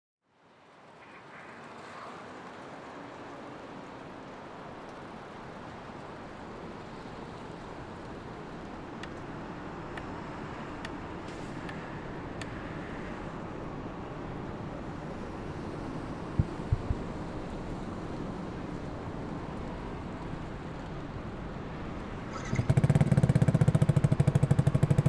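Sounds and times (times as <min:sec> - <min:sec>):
road traffic noise: 0:06.3 - 0:17.3.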